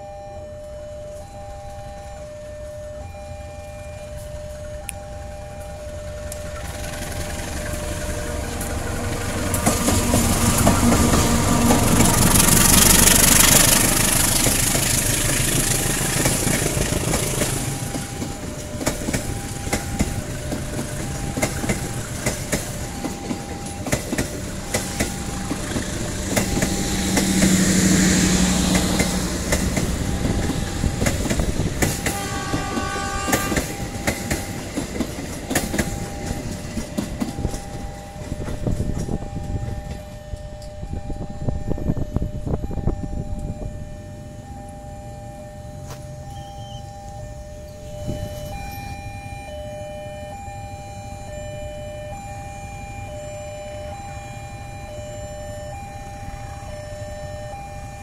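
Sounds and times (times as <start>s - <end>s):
diesel locomotive passing: 0.0s - 58.0s
level crossing warning tone: 0.0s - 58.0s
wheels clacking over rail joints: 5.6s - 40.8s.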